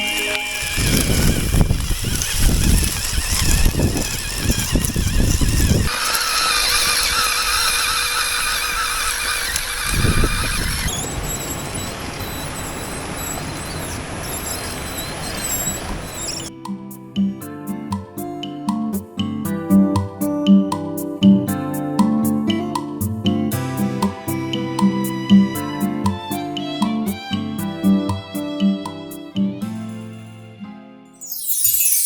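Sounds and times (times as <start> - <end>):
toy car electric motor whining: 0.0 - 16.5, 31.2 - 32.0.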